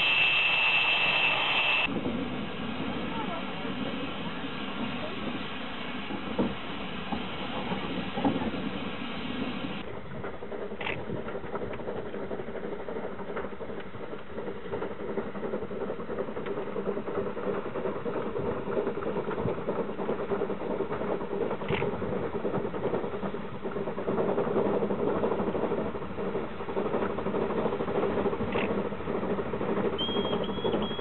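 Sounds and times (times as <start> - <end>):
rotary snowplow droning: 0.0 - 10.8.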